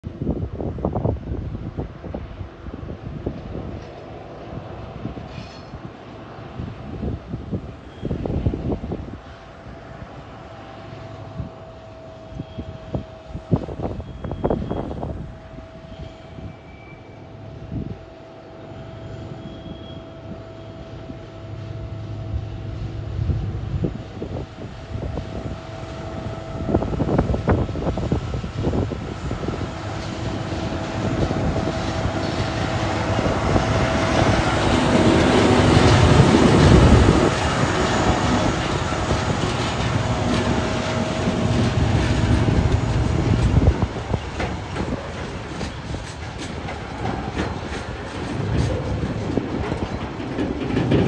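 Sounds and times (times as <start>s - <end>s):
diesel locomotive engines under load: 0.1s - 51.0s
wagon wheels clattering over rails: 44.3s - 51.0s.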